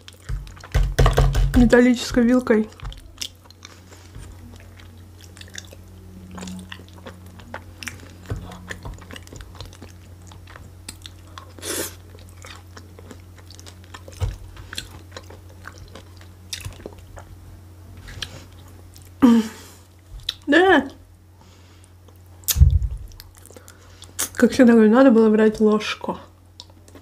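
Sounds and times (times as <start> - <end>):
person chewing salad: 0.0 - 0.8, 2.7 - 17.4, 18.0 - 19.2, 21.5 - 24.4, 26.6 - 27.0
steady low hum: 0.0 - 27.0.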